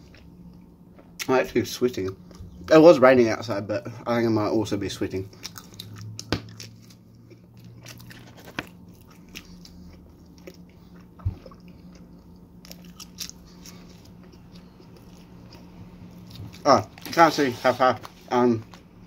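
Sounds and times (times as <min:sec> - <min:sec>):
person chewing pizza: 0:00.0 - 0:01.3, 0:04.8 - 0:18.9
faint low hum: 0:00.0 - 0:19.0.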